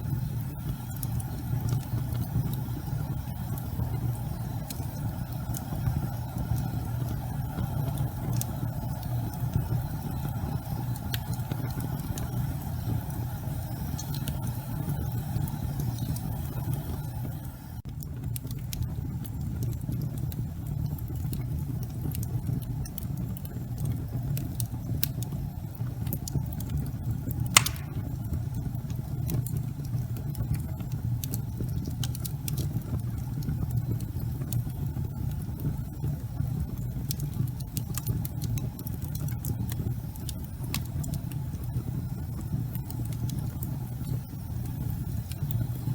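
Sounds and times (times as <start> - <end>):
fire crackles: 0.0 - 45.9
fire rumbling in fireplace: 0.0 - 45.9
sharp fire pop: 27.5 - 28.2.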